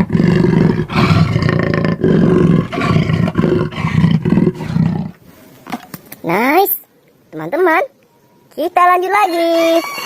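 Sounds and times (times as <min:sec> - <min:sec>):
big cat roaring: 0:00.0 - 0:05.2.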